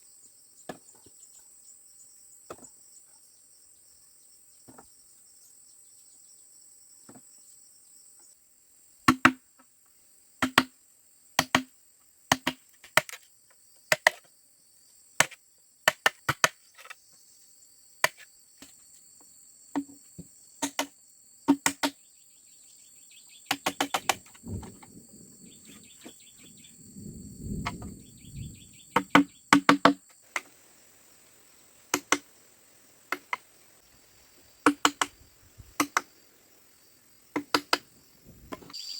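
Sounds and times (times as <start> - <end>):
insects buzzing: 0.0 - 38.9
tool knocking on bamboo: 9.1 - 9.4, 10.4 - 10.7, 11.4 - 11.7, 29.0 - 30.5, 34.6 - 35.2.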